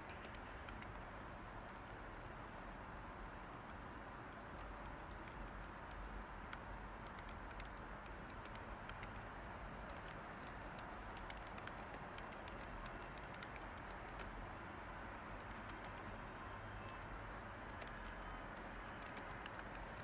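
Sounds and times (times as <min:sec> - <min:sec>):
keyboard typing: 0:00.0 - 0:01.0, 0:04.5 - 0:14.4, 0:15.3 - 0:16.2, 0:16.8 - 0:20.0
white noise hiss: 0:00.0 - 0:20.0.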